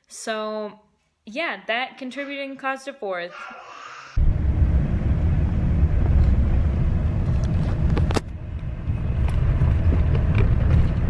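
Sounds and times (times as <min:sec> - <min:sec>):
vehicle road rumble: 0:04.2 - 0:11.0.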